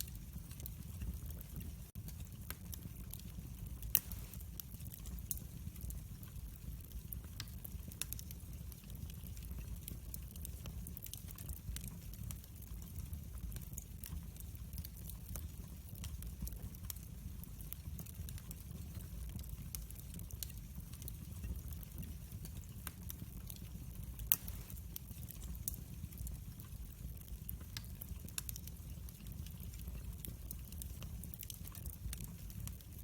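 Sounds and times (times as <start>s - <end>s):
fire popping: 0.0s - 33.0s
low rumble of flame: 0.0s - 33.0s
wood fire crackling: 0.0s - 33.0s.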